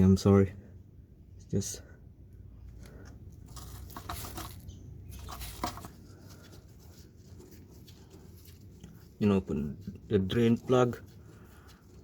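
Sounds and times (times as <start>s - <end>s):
tools clicking and rustling: 3.4s - 6.0s.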